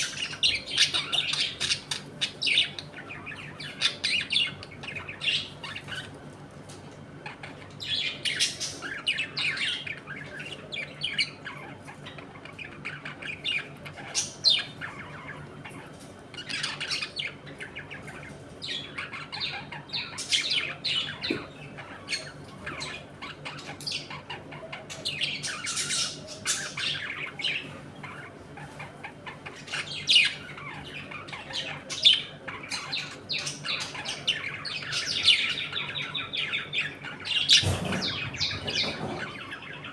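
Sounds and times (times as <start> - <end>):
budgerigars chattering: 0.0 - 6.3, 7.2 - 39.9.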